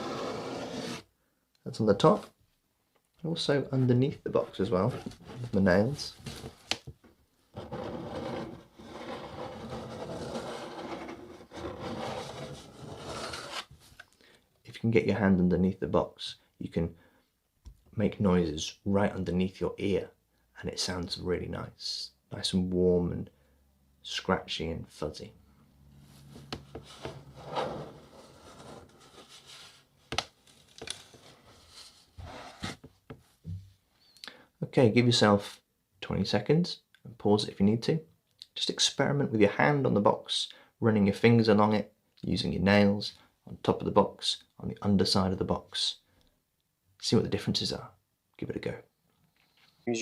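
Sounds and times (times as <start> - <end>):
fingernails scratching cardboard box: 0.0 - 1.0, 7.6 - 13.7.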